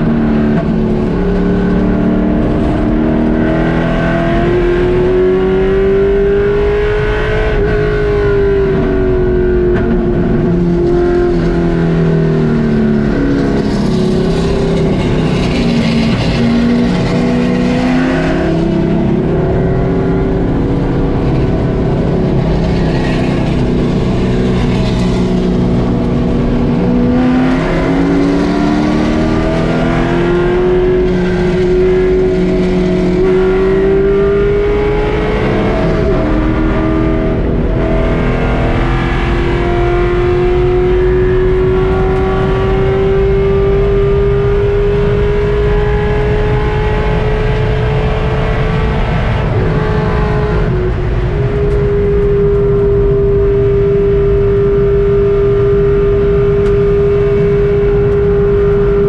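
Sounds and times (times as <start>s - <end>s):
race car engine at full throttle: 0.0s - 59.0s.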